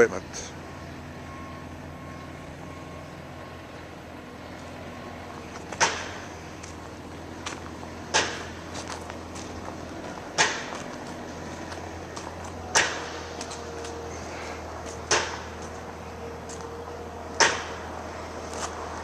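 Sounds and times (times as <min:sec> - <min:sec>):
sharp knocks: 0:05.7 - 0:06.2, 0:08.1 - 0:08.6, 0:10.4 - 0:10.9, 0:12.7 - 0:13.2, 0:15.1 - 0:15.7, 0:17.4 - 0:17.8.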